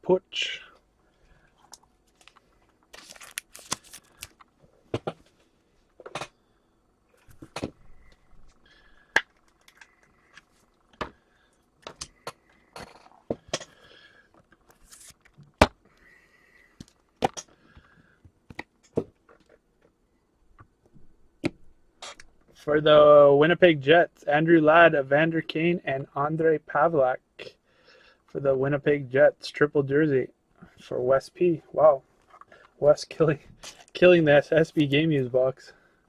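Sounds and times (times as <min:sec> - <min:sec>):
plastic wrapper crinkling: 0:02.1 - 0:04.5.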